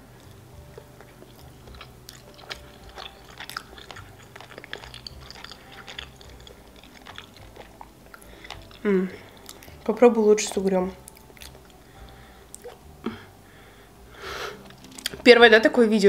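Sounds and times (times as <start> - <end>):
person chewing with mouth clicks: 0.2 - 9.9, 11.0 - 13.1, 14.6 - 15.2.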